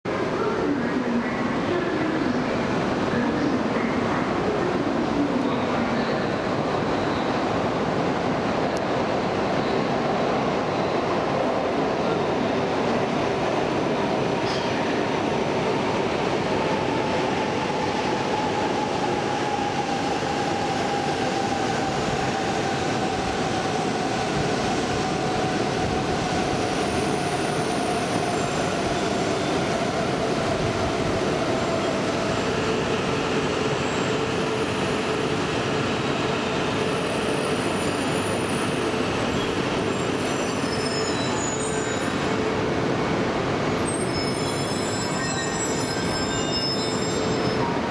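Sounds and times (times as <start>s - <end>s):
high-pitched brake squeals: 36.8s - 42.2s, 43.8s - 47.7s.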